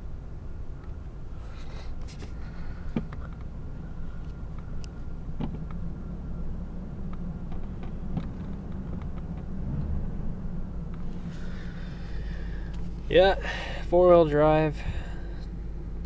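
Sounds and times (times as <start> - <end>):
engine idling: 0.0 - 9.6, 10.2 - 16.0.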